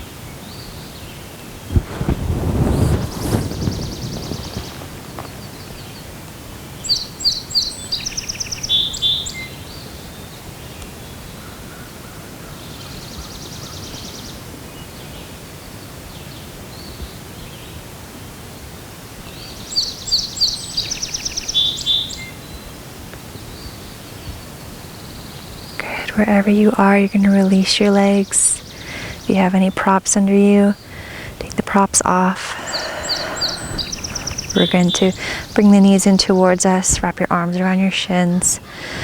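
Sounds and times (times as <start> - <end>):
steady outdoor hiss: 0.0 - 39.0
buzzy bird call: 2.8 - 5.5, 30.4 - 36.9.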